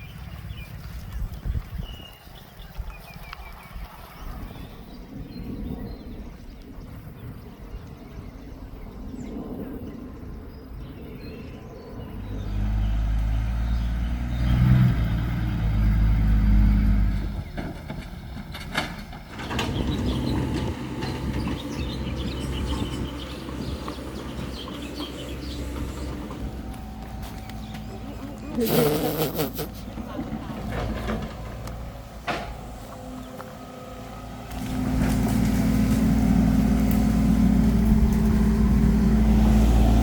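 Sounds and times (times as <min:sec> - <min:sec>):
excavator diesel engine revving: 0:12.1 - 0:40.0.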